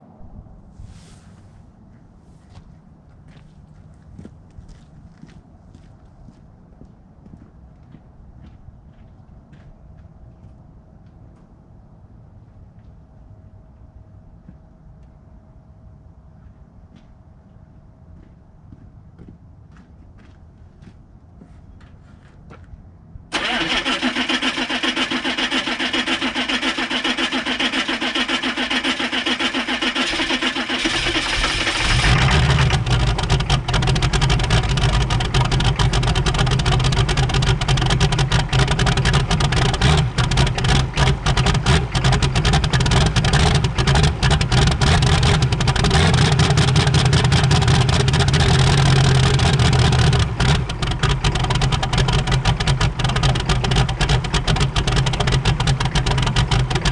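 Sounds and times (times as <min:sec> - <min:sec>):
diesel engine running: 0:23.3 - 0:56.9
starter motor cranking: 0:23.3 - 0:56.9.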